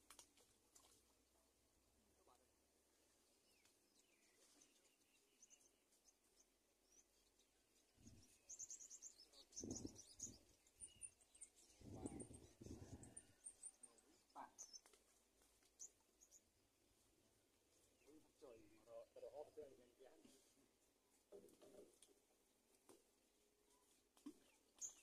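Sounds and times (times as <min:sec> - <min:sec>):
bird chirps and trills: 0:03.4 - 0:15.0, 0:15.7 - 0:16.5, 0:24.4 - 0:25.0
low muffled sounds: 0:11.6 - 0:15.4.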